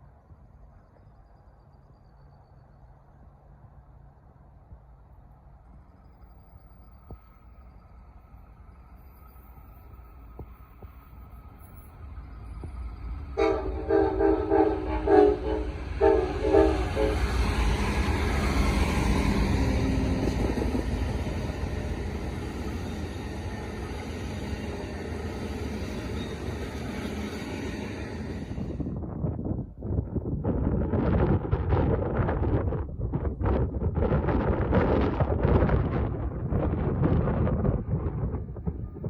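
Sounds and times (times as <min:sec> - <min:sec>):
train rumble and rail noise: 0:00.0 - 0:39.0
diesel locomotive horn blasts: 0:13.3 - 0:18.5.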